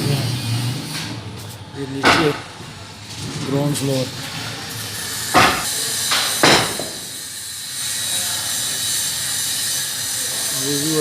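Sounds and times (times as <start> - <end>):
sharp knocks: 2.0 - 2.6, 5.3 - 7.0.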